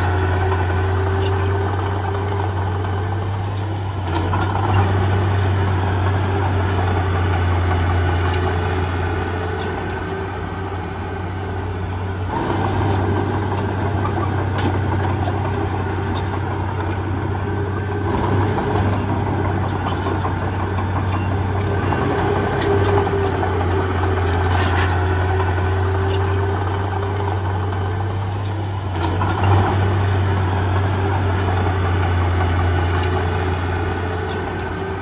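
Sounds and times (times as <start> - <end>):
heavy diesel engine running: 0.0 - 35.0
short clanks and knocks: 12.5 - 34.5.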